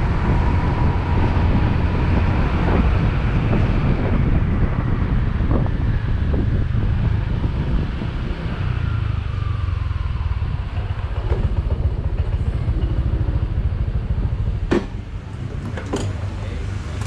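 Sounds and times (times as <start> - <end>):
wind buffeting microphone: 0.0 - 15.7
motorbike engine: 7.6 - 17.0.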